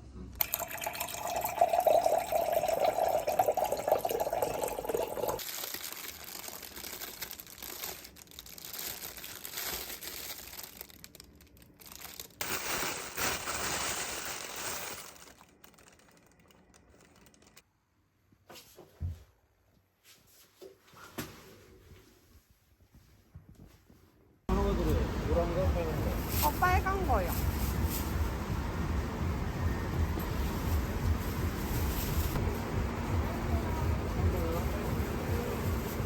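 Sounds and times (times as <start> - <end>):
packaging crinkling and tearing: 5.4 - 17.6.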